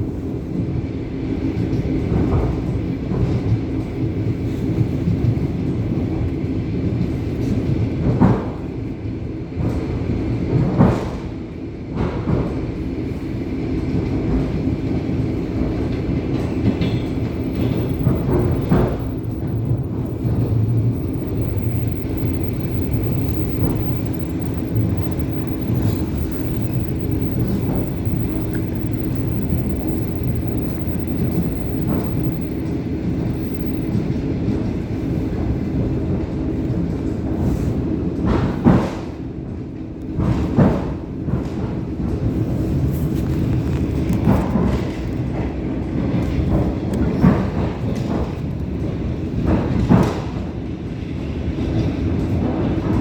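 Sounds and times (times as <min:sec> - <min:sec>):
train wheels rumbling on rail: 0:00.0 - 0:53.0
constant hum: 0:15.7 - 0:34.2.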